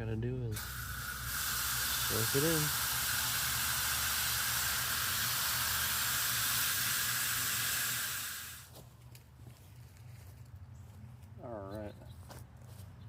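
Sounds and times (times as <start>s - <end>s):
water spraying from hose nozzle: 0.5s - 8.7s.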